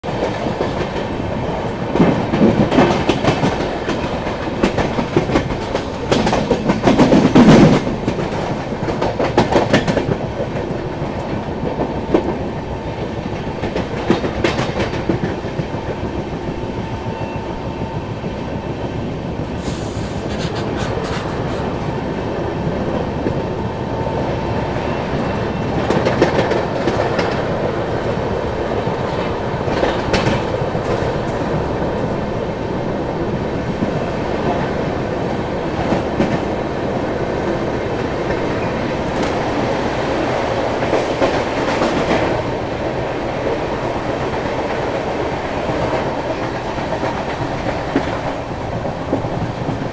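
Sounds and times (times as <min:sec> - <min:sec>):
train wheels clattering over rail joints: 0:01.8 - 0:12.6, 0:29.1 - 0:31.6.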